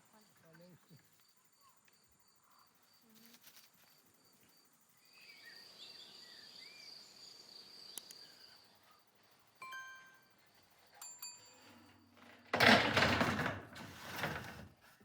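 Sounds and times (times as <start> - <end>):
soft bird chirps: 4.4 - 9.3.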